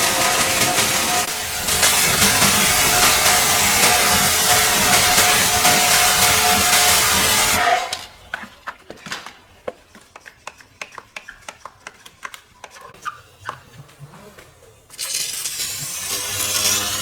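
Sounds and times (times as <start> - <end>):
loud hiss of spray: 0.0 - 7.8
motor hum: 0.0 - 8.3.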